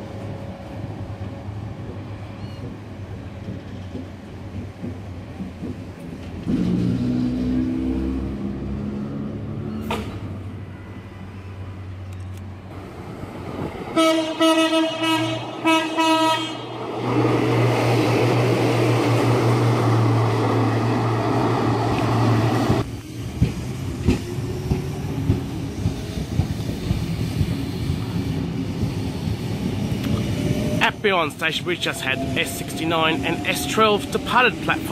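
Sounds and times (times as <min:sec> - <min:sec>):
heavy train running rumble: 0:00.0 - 0:12.0, 0:12.7 - 0:34.9
rising train motor whine: 0:12.8 - 0:34.9
train horn blasts: 0:14.0 - 0:16.7.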